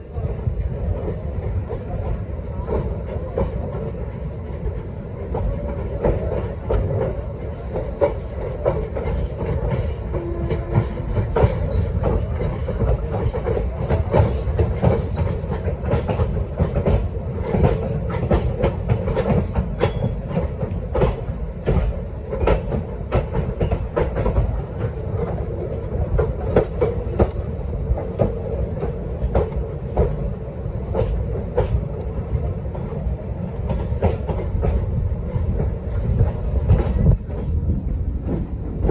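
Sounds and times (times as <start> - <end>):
train rumbling: 0.0 - 38.9
wheels clacking over rail joints: 1.0 - 30.3.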